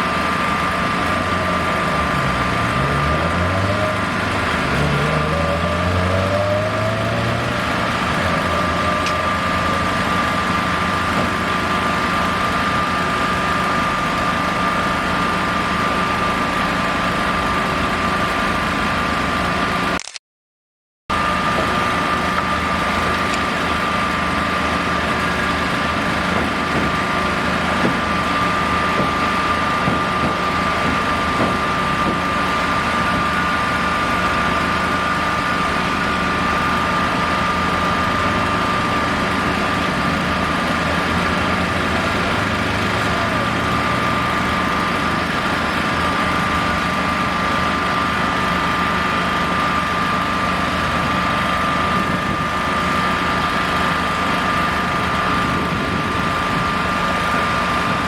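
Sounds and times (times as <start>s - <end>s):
engine idling: 0.0s - 19.9s, 21.1s - 58.0s.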